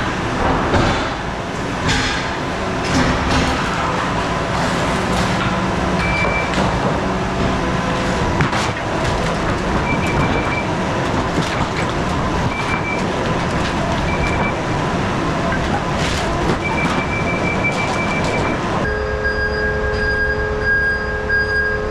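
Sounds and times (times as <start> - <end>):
loader engine running: 0.0 - 21.9
metallic knocks and clanks: 8.3 - 18.9.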